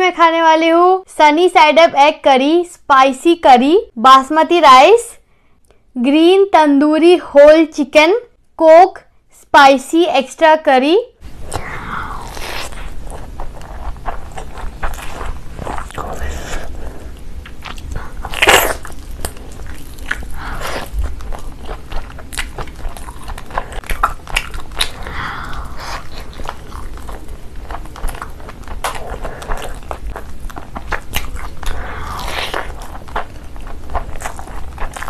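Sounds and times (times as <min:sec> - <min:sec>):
wet chewing: 0:11.5 - 0:35.0.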